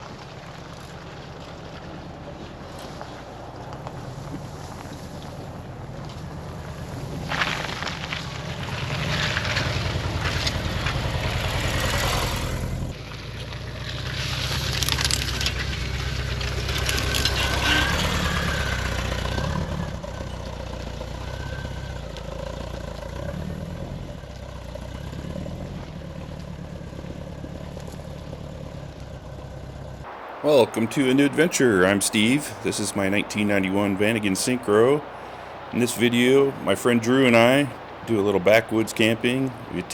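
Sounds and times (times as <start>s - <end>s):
crunching and rattling over rough ground: 0.0s - 29.4s
van engine running: 0.0s - 30.6s.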